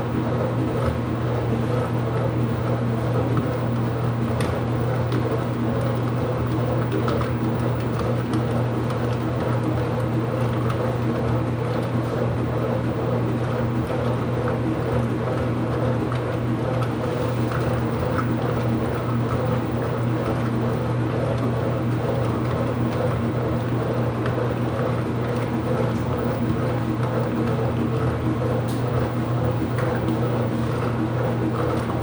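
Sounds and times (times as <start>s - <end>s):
washing machine humming: 0.0s - 32.0s.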